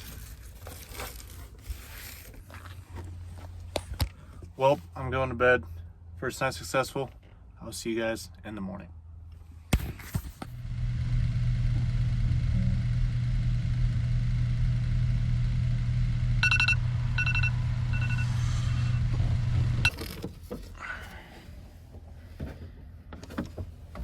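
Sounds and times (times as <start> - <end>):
vehicle engine idling: 10.6 - 19.9
electronic chime beeps: 16.4 - 19.0.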